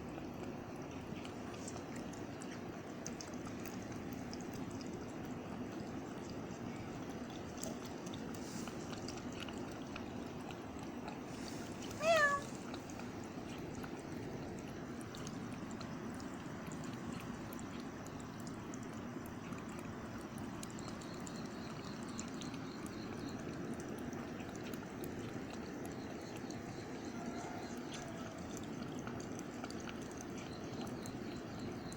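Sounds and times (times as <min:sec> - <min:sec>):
cat meowing: 0:11.8 - 0:12.5.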